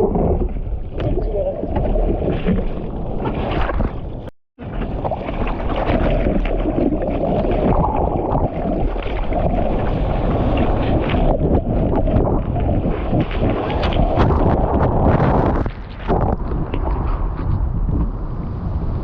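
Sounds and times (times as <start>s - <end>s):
wind buffeting microphone: 7.2s - 19.0s.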